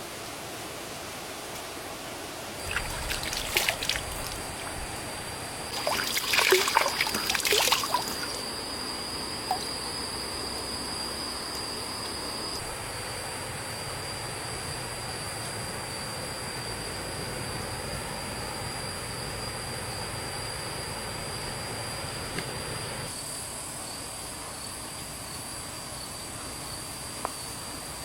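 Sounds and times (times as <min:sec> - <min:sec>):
water splashing and sloshing: 0:02.6 - 0:08.5, 0:09.5 - 0:09.7
stream water trickling: 0:02.6 - 0:09.9.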